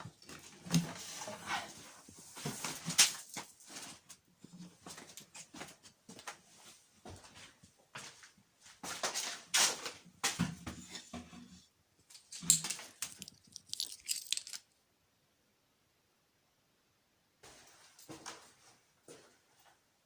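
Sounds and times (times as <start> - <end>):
debris crunching and crackling: 12.3 - 14.7.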